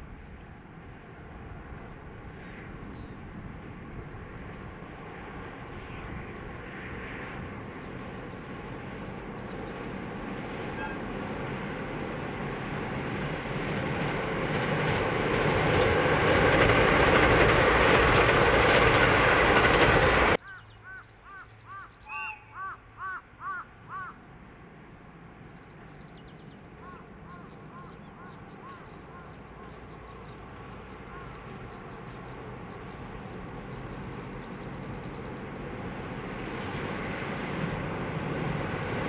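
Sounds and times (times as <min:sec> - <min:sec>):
train rumbling over bridge: 0:00.0 - 0:39.0
crow cawing: 0:20.4 - 0:21.9, 0:22.5 - 0:24.2.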